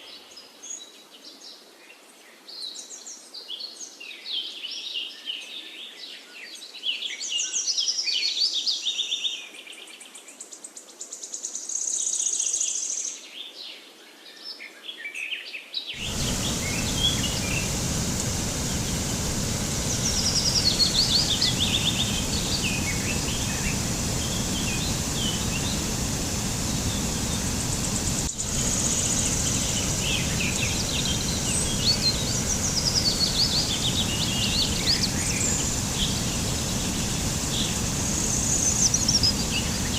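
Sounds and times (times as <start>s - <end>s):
songbirds chirping: 16.0s - 39.9s
steady rushing noise: 16.0s - 39.9s.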